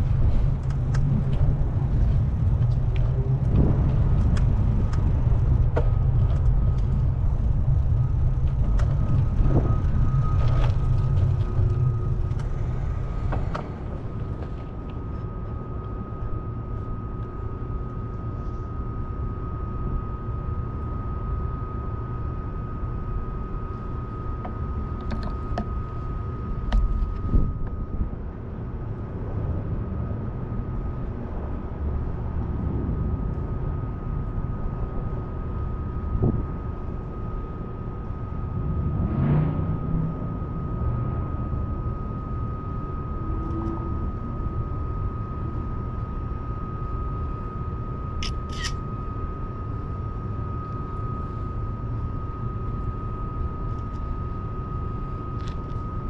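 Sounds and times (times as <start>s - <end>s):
traffic rumble: 0.0s - 17.6s.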